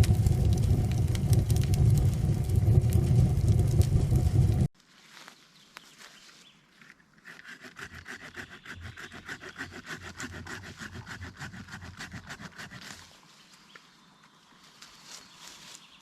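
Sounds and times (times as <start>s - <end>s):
saw cutting through wood: 7.2s - 13.1s.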